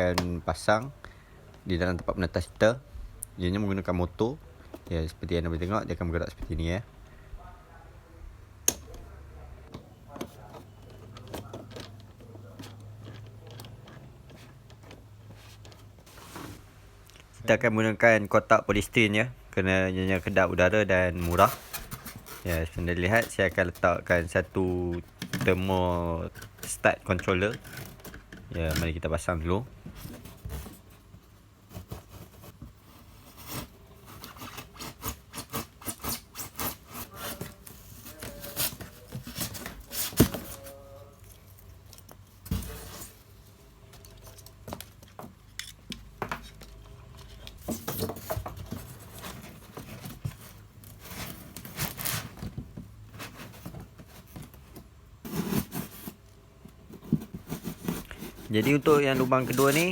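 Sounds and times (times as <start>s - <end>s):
scraping and rubbing on foam: 20.1s - 26.8s, 53.1s - 56.2s, 56.8s - 59.9s.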